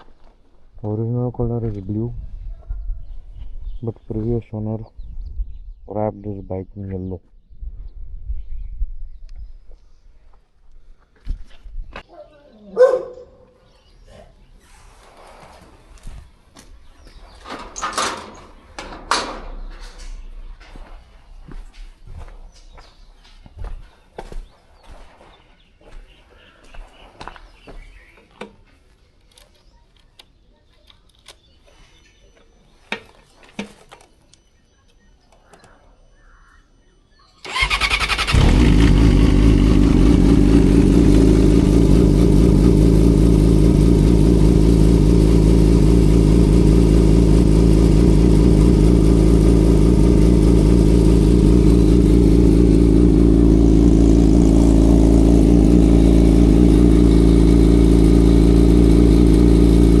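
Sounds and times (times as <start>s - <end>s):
motorcycle engine starting: 37.4s - 60.0s
motorcycle engine idling: 37.5s - 60.0s.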